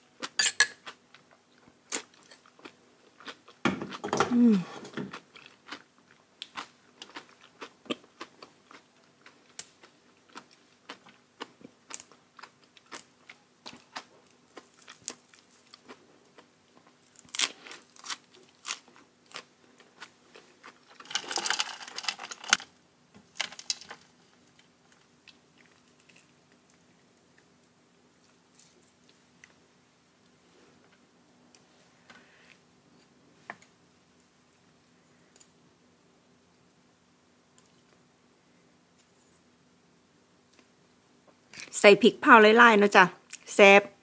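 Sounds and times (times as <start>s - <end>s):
chewing and crunching food: 0.1s - 22.7s, 23.3s - 27.6s.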